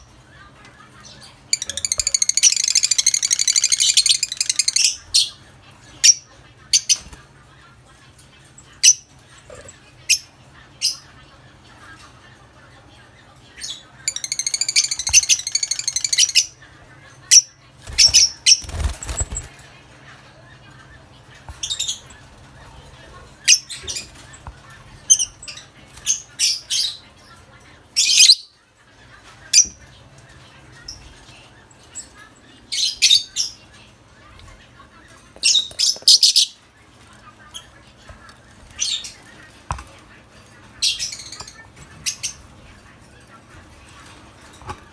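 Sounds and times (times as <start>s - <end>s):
lovebirds chattering chirps: 0.0s - 44.3s
lovebirds squawking: 1.1s - 6.2s, 13.6s - 16.6s.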